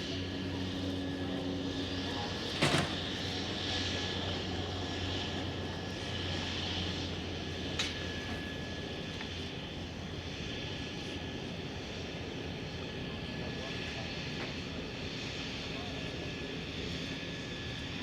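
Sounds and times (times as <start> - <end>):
plane engine humming: 0.0 - 18.0.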